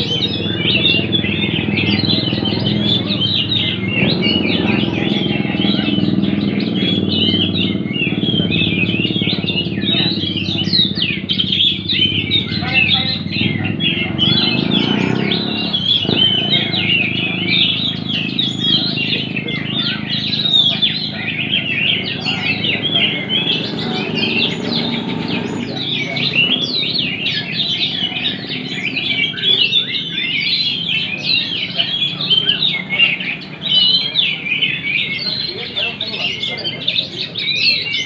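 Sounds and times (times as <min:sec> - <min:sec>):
people talking: 0:00.0 - 0:38.0
songbirds chirping and trilling: 0:00.0 - 0:38.0.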